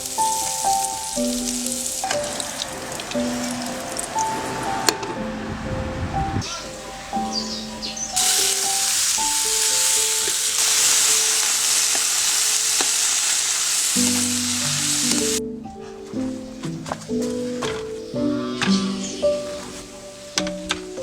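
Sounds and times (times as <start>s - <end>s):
food sizzling in hot oil: 0.0s - 4.4s, 8.2s - 15.4s
melodic background music: 0.0s - 11.5s, 14.0s - 21.0s.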